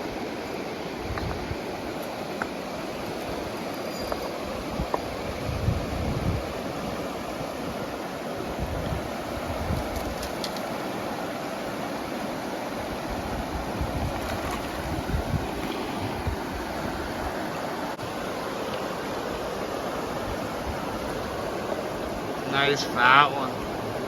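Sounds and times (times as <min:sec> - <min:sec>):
flowing river water: 0:00.0 - 0:24.0
wind buffeting microphone: 0:04.5 - 0:10.2, 0:13.0 - 0:17.4.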